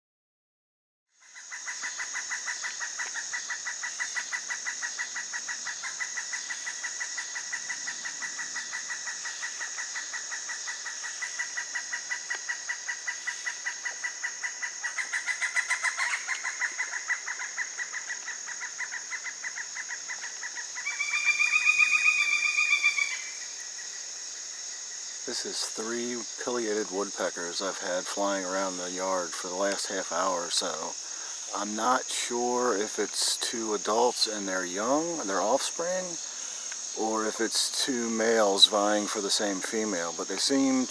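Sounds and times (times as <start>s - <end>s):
insect chorus pulsing chirr: 1.1s - 40.9s
woodpecker ringing call: 1.3s - 23.5s.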